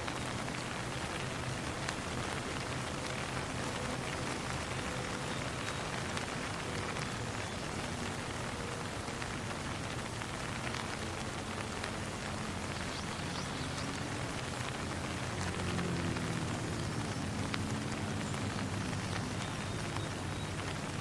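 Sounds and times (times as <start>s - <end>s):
raindrops ticking: 0.0s - 21.0s
steady rain hiss: 0.0s - 21.0s.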